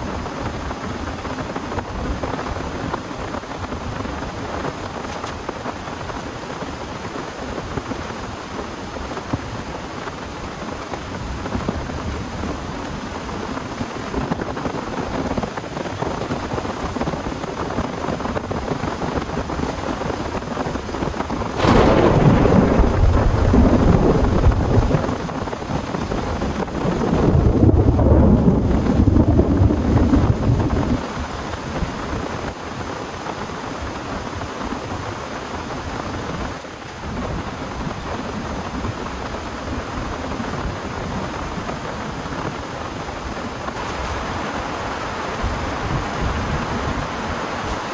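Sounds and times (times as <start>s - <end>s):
torrential rain falling: 0.0s - 47.9s
thunder clap and rumble: 21.4s - 31.6s.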